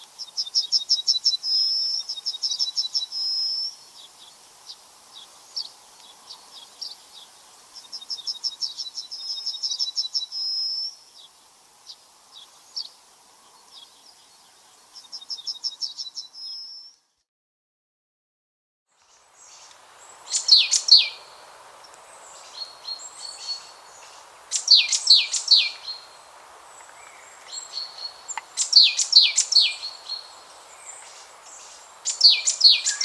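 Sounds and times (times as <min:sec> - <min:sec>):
songbird trilling and whistling: 0:20.3 - 0:21.2, 0:24.5 - 0:26.1, 0:27.0 - 0:30.3, 0:31.6 - 0:33.0.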